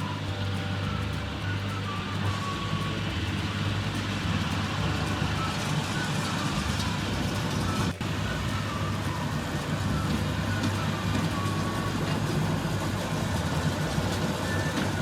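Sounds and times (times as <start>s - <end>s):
tractor engine running under load: 0.0s - 15.0s.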